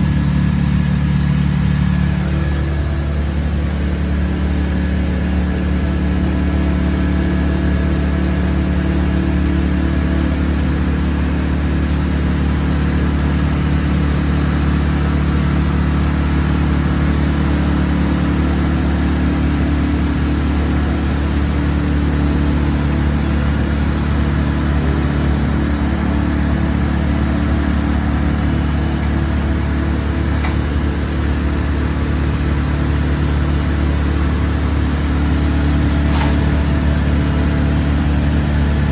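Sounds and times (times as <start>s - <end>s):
heavy crane engine droning: 0.0s - 38.9s.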